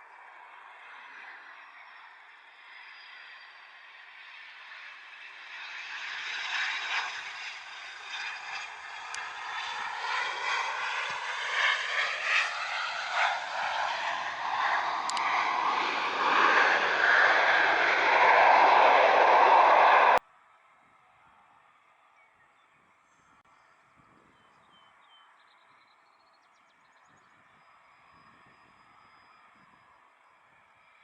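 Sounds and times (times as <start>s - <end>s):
jet engines whining: 0.4s - 20.2s.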